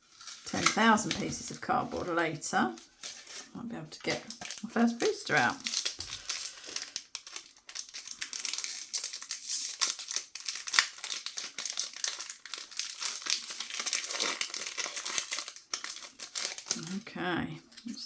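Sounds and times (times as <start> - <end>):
wrapper tearing: 0.0 - 17.1
plastic packaging crinkling: 0.0 - 18.0.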